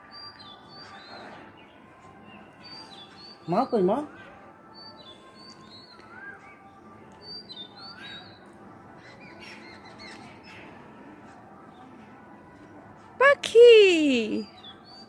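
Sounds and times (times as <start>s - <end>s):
small birds chirping: 0.0s - 11.8s, 14.3s - 15.0s
whistled bird notes: 4.7s - 10.7s.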